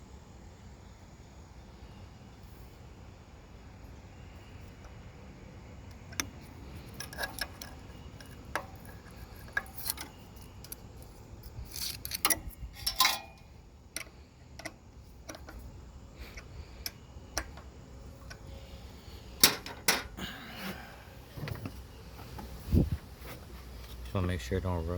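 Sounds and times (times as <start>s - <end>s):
hand tools clicking on metal: 5.9s - 18.5s.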